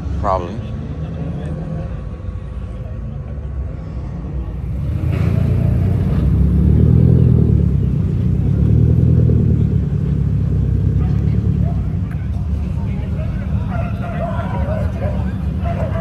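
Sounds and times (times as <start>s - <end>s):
car engine and exhaust rumbling: 3.6s - 16.0s.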